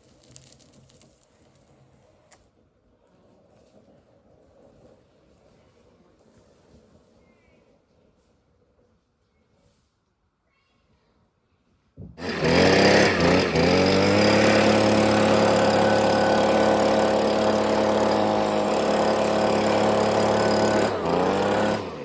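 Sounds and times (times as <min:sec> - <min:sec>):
chainsaw cutting log: 0:00.0 - 0:01.8, 0:12.2 - 0:22.0.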